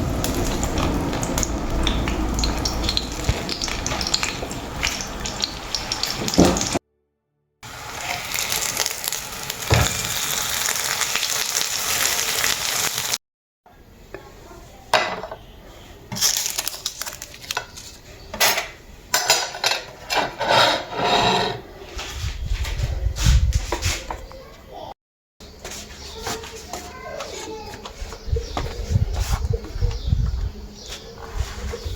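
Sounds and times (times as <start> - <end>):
food sizzling in a pan: 0.0 - 6.8, 7.6 - 13.2
utensils clinking on pots: 16.1 - 21.6.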